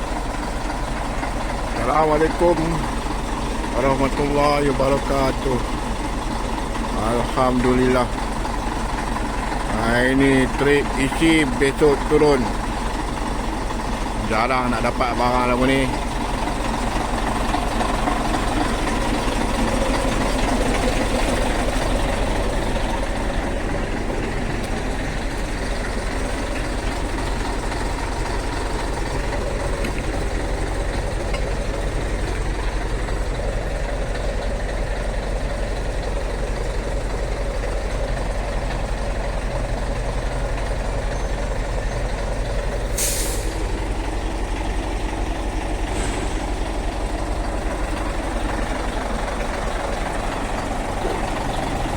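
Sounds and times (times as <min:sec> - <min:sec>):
truck engine running: 0:00.0 - 0:51.9
air brake hiss: 0:42.9 - 0:43.7.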